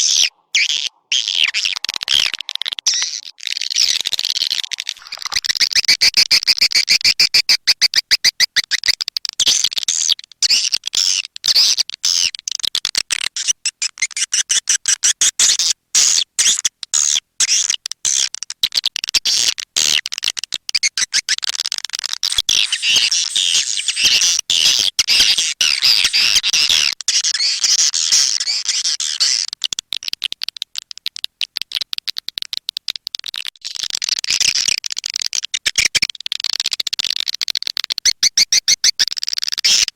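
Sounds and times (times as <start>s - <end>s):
swiftlet calls twittering: 0.0s - 7.8s.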